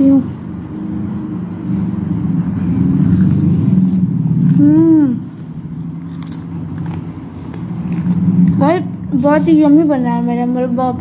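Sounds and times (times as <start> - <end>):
steady low hum: 0.0 - 11.0
person biting and chewing: 2.5 - 4.8, 5.4 - 8.6
person humming mmm: 4.5 - 5.4.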